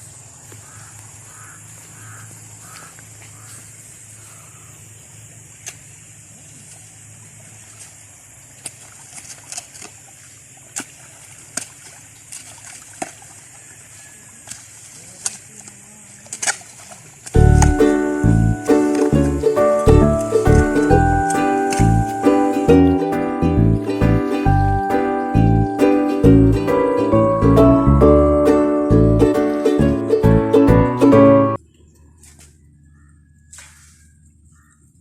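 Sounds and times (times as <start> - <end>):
high insect drone: 0.0 - 8.6, 20.9 - 23.1
splashes and ticks at water: 0.4 - 3.6, 5.3 - 17.8, 18.6 - 22.2, 31.9 - 32.6, 33.5 - 34.9
bird-like calls: 0.5 - 4.9
loud music: 17.4 - 31.6.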